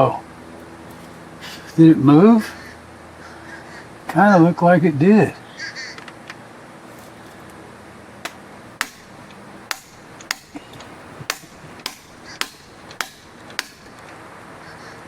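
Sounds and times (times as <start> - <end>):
hammer blows on metal: 8.8 - 14.0.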